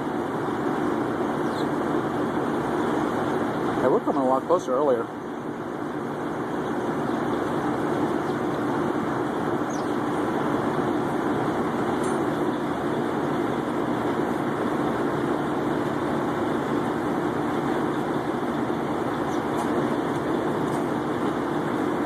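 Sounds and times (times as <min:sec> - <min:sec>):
truck engines idling: 0:00.0 - 0:22.0
small birds chirping: 0:01.3 - 0:01.8, 0:05.2 - 0:15.8, 0:17.6 - 0:21.2.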